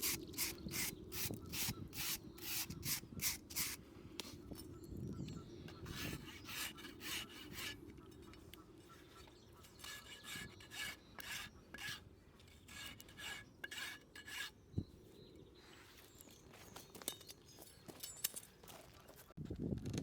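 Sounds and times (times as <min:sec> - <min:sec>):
rasp scraping a hoof: 0:00.0 - 0:04.7, 0:05.7 - 0:14.7.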